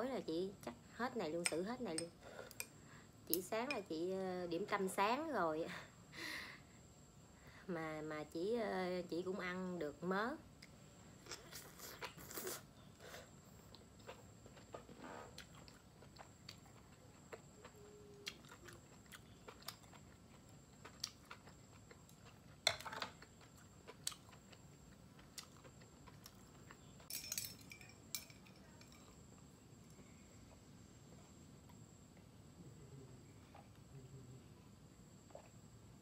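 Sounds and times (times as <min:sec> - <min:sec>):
person chewing: 0:11.2 - 0:27.1
sipping through a straw: 0:11.3 - 0:13.3.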